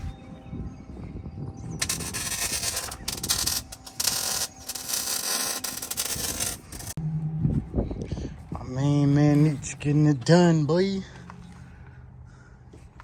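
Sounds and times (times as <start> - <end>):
arc welder crackling hiss: 1.8 - 7.0.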